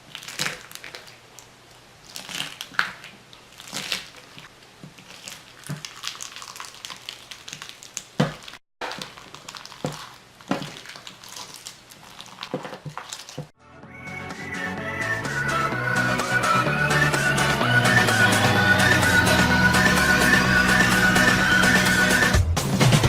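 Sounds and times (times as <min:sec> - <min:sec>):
slime squeezed crackling and popping: 0:00.0 - 0:13.4.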